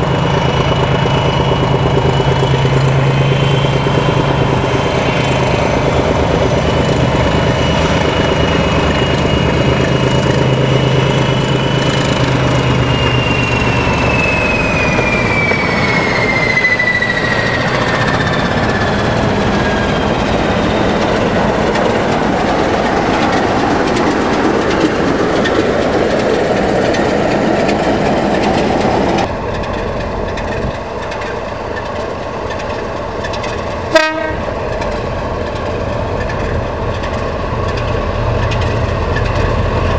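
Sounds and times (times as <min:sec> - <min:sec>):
diesel locomotive engine drone: 0:00.0 - 0:39.9
train on the rails: 0:00.0 - 0:39.9
high whistle falling in pitch: 0:12.6 - 0:18.8.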